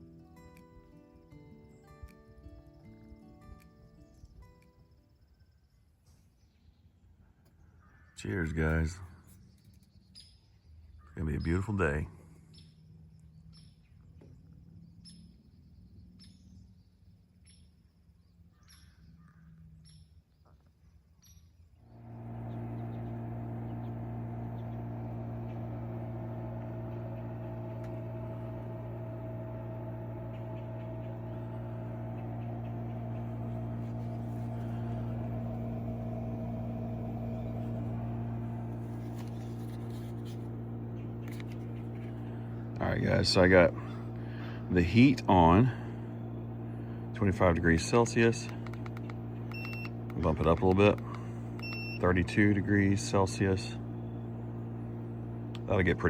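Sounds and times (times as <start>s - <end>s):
birds chirping: 6.4s - 56.0s
air conditioner humming: 21.9s - 56.0s.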